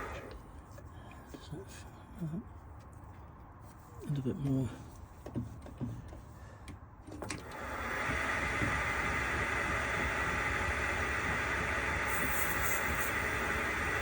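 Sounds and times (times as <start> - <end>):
metal lathe whirring: 8.2 - 14.0.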